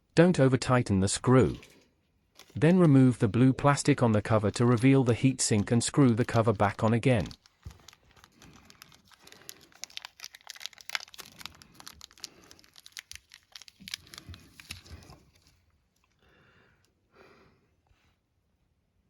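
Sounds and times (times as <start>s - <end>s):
plastic film peeling and crinkling: 1.4s - 15.6s.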